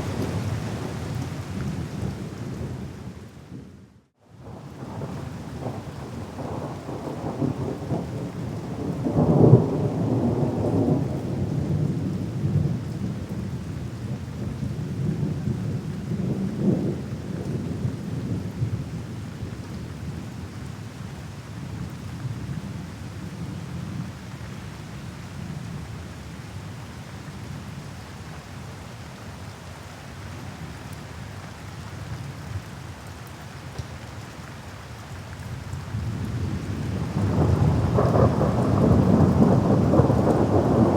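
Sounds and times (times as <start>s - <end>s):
steady rain: 0.0s - 40.9s
rolling thunder: 36.0s - 40.9s.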